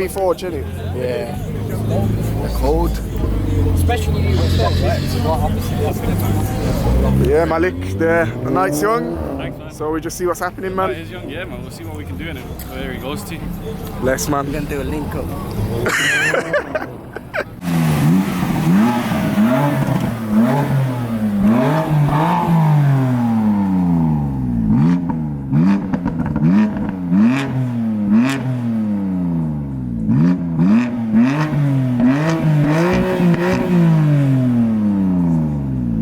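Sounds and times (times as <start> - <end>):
car engine revving: 0.0 - 36.0
exhaust pops and cracks: 25.8 - 27.0.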